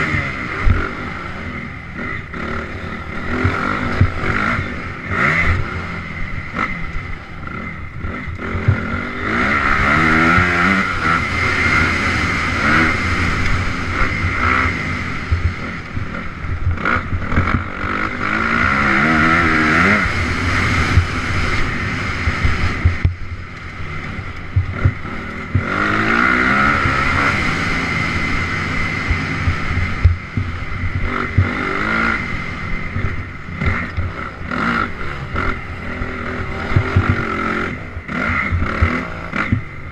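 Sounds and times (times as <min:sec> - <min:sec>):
dirt bike engine revving: 0:00.0 - 0:39.9
rough rushing noise: 0:00.0 - 0:39.9.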